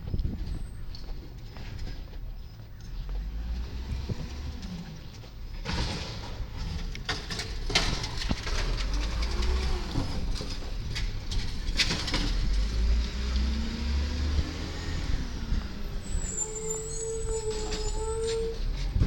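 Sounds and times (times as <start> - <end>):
garbage truck engine rumbling: 0.0 - 19.0
sharp knocks and clatters: 5.2 - 12.9.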